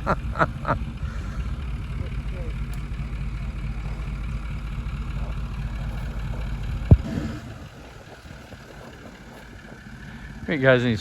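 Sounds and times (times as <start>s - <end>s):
engine straining with low rumble: 0.0s - 11.0s
sharp thump: 6.8s - 7.4s.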